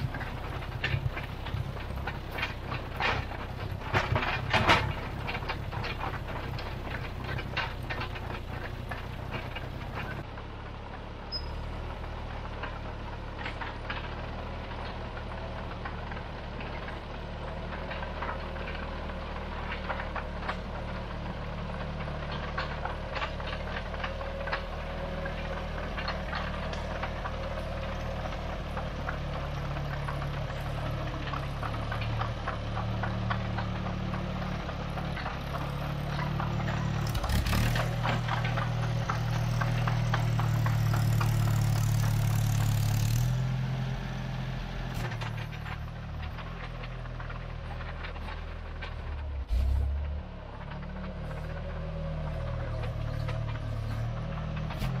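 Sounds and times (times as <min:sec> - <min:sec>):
steel tracks clanking and rattling: 0:00.0 - 0:10.3
diesel engine running: 0:00.0 - 0:55.0.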